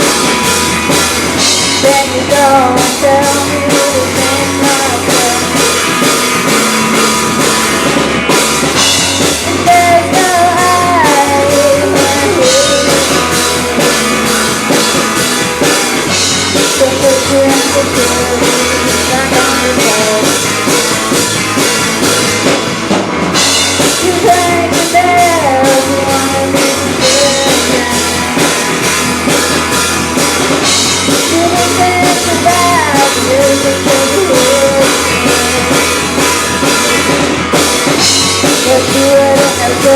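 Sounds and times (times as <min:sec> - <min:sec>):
bass guitar: 0:00.0 - 0:39.9
drum kit: 0:00.0 - 0:39.9
electric guitar: 0:00.0 - 0:39.9
person singing lead vocal: 0:01.4 - 0:06.0, 0:09.2 - 0:15.2, 0:16.5 - 0:21.2, 0:23.8 - 0:28.8, 0:31.0 - 0:37.0, 0:38.4 - 0:39.9.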